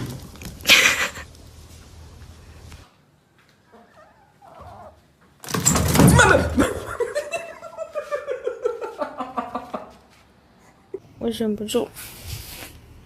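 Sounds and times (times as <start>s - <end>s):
person laughing: 0.6s - 1.3s, 6.5s - 10.0s.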